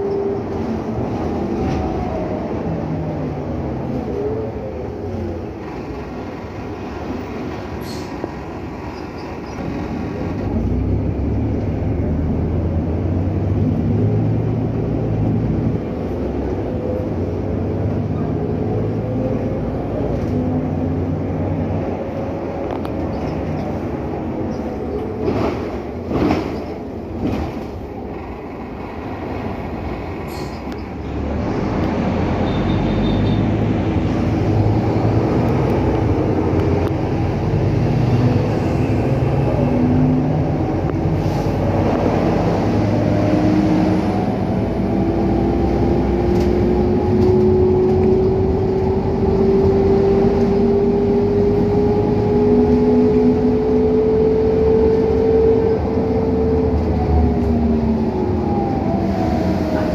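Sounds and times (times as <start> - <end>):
bus drivetrain rumbling: 0.0 - 59.9.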